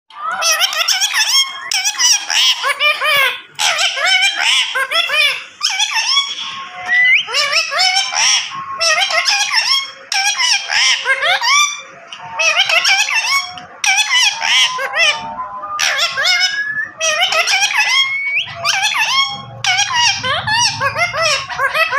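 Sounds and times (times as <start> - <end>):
parrot chattering: 0.1 - 21.9
parrot rising whistle: 5.6 - 9.7, 15.9 - 21.0.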